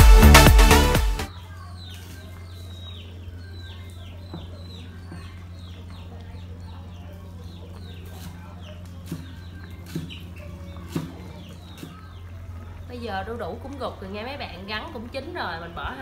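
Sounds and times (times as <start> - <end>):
chicks peeping: 1.3 - 16.0.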